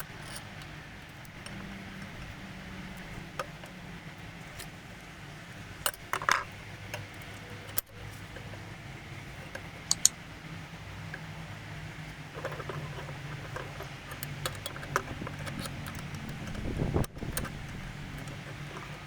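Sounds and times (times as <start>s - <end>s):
metal parts clicking and clinking: 9.5s - 10.2s, 12.4s - 19.0s.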